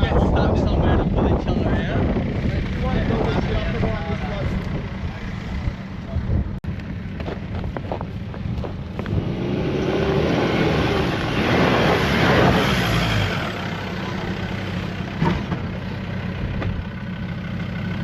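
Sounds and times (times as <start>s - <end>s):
engine revving under load: 7.2s - 16.8s.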